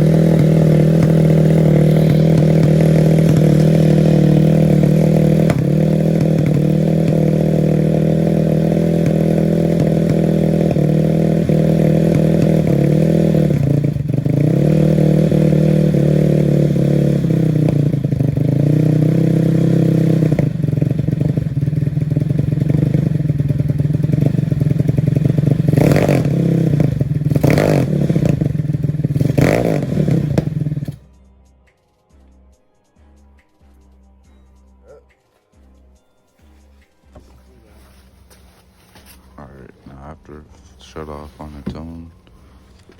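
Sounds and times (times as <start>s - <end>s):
engine pops: 0.0s - 14.8s, 20.1s - 31.0s
motorcycle engine idling and stalling: 0.0s - 31.2s, 36.7s - 42.9s.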